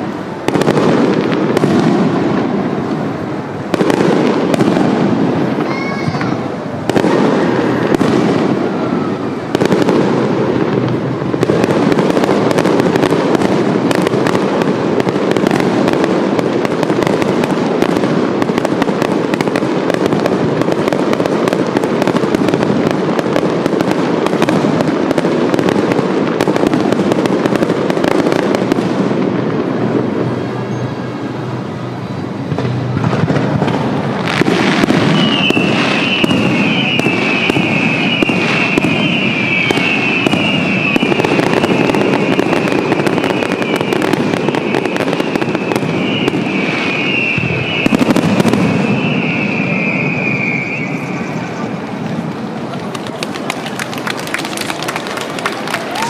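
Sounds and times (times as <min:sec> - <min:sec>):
firework crackling: 0:00.0 - 0:56.0.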